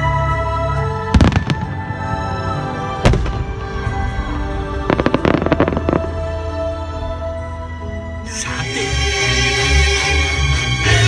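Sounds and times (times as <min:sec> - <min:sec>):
music: 0:00.0 - 0:11.0
fireworks bangs and pops: 0:04.8 - 0:06.2.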